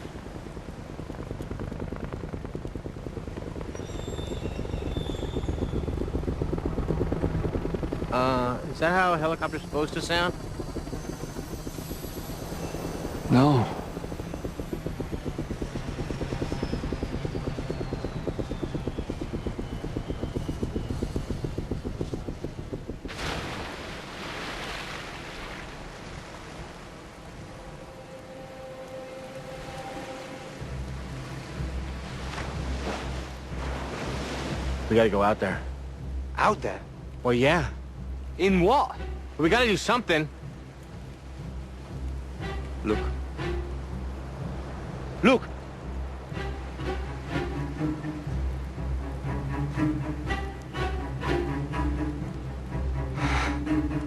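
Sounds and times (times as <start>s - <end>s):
helicopter rotor chop: 0.0s - 24.1s.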